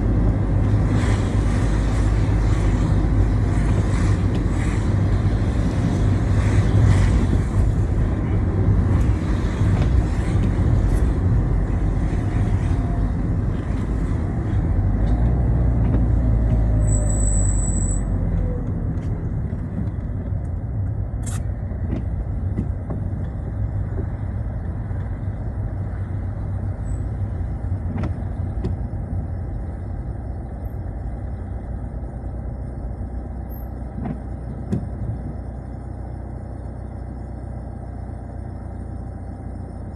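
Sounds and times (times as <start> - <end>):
tyres hissing on wet road: 0.0 - 18.3
car engine and road rumble: 0.0 - 39.9.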